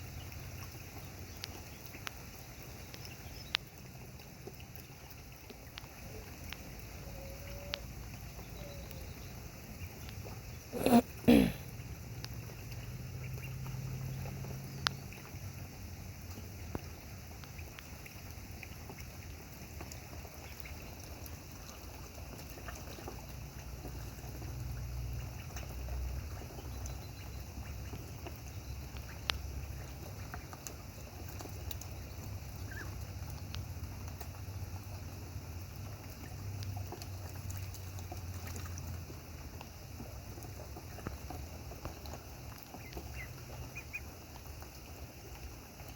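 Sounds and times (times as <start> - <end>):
steady rain falling: 0.0 - 45.9
drips splashing: 9.6 - 45.9.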